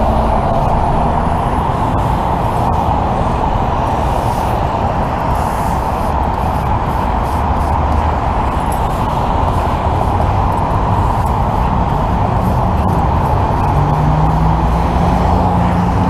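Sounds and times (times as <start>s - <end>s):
low engine note: 0.0s - 5.4s
freeway traffic roar: 0.0s - 16.0s
idling vehicle engine hum: 0.0s - 16.0s.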